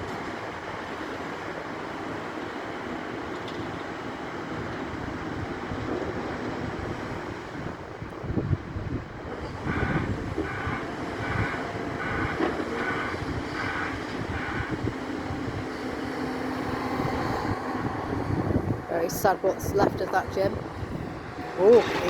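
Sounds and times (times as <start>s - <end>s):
excavator engine running: 8.7s - 22.0s.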